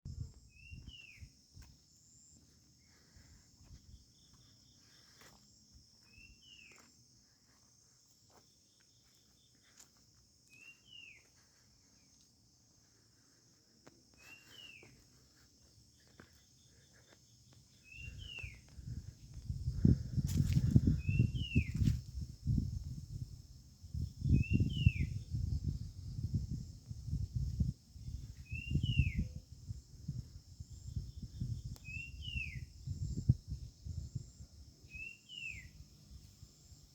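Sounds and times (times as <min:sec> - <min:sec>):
high insect drone: 0:00.1 - 0:36.9
wind buffeting microphone: 0:18.0 - 0:35.0.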